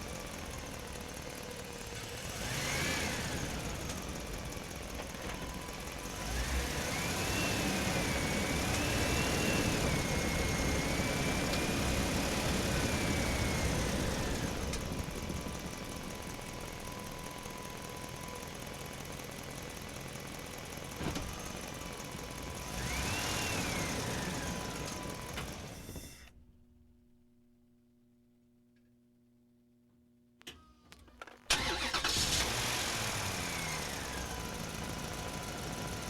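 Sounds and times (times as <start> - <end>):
toy tractor motor whining: 31.5 - 32.6.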